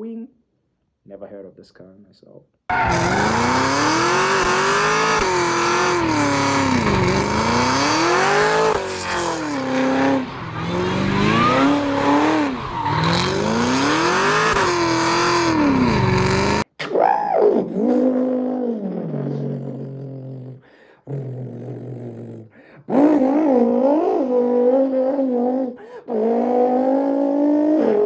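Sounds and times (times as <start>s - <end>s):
car engine accelerating hard: 2.7s - 16.6s.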